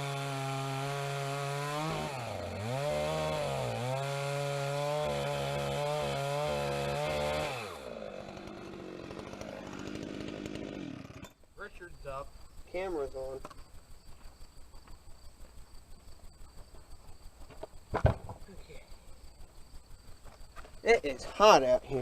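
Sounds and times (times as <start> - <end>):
chainsaw cutting log: 0.0 - 11.4.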